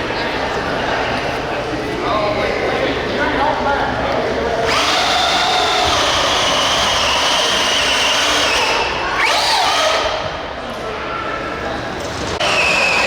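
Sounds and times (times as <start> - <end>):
toy vehicle motors whining: 4.6 - 10.2, 12.4 - 13.0.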